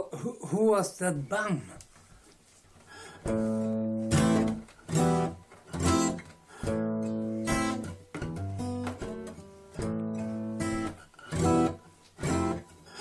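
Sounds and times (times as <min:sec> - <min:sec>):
acoustic guitar strumming chords: 0:03.2 - 0:13.0.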